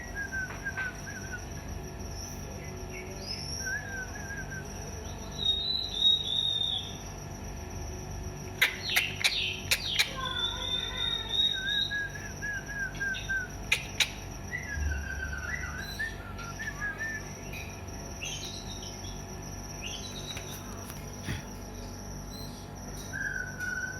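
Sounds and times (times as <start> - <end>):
bird whistled chirps: 0.0 - 7.0, 8.6 - 19.2, 22.3 - 23.9
high-pitched whine: 10.2 - 23.9.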